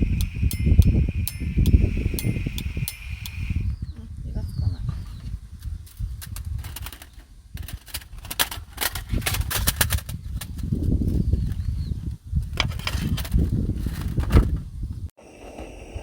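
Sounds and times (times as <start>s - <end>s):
sharp crackling clicks: 0.0s - 3.8s
wind rumbling on microphone: 0.0s - 16.0s.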